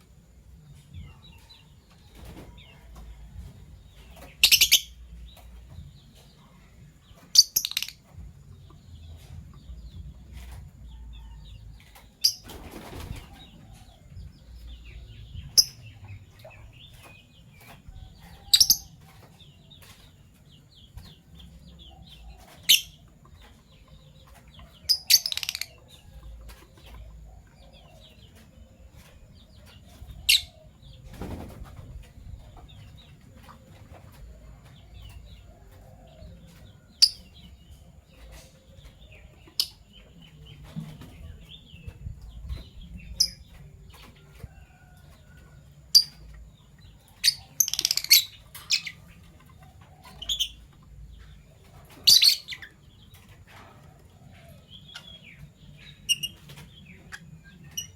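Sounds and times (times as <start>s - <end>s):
lovebirds shrill calls: 4.1s - 5.0s, 7.3s - 8.0s, 18.4s - 19.0s, 24.8s - 25.8s, 47.2s - 49.0s, 52.0s - 52.8s.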